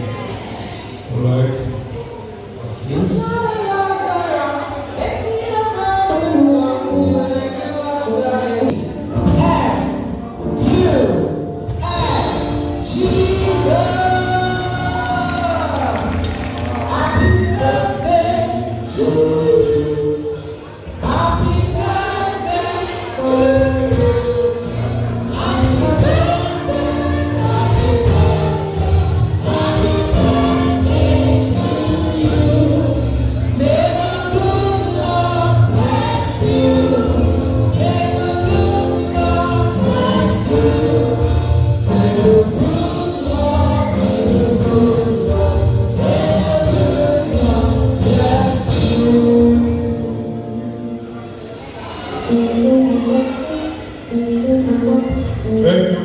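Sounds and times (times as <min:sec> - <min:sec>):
live band playing: 0:01.8 - 0:56.0
congregation and choir singing: 0:11.9 - 0:51.2.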